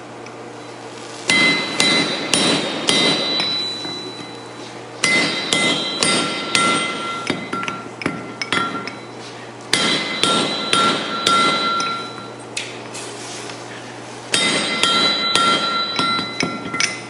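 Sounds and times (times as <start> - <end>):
hammer striking chisel ringing: 1.3 - 12.4, 14.3 - 17.0.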